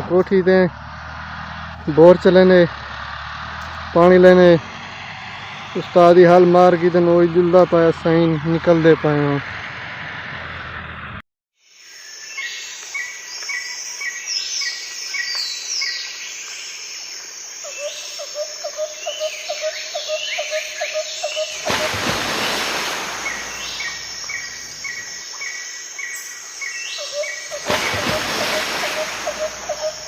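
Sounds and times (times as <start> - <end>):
birds chirping: 17.5 - 30.0.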